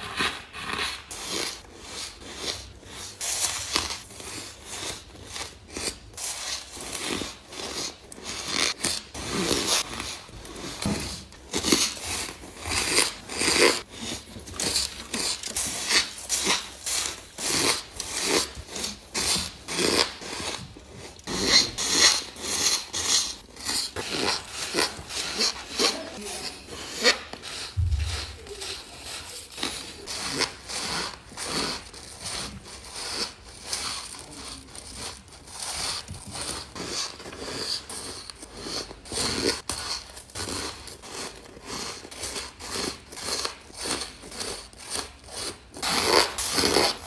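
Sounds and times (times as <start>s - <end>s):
ice being crunched and chewed: 27.6s - 47.0s.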